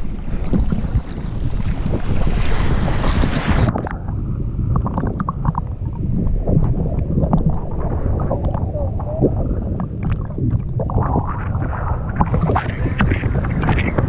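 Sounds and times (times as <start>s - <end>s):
sea surf: 0.0s - 4.7s, 5.4s - 9.7s
wind buffeting microphone: 0.0s - 14.0s.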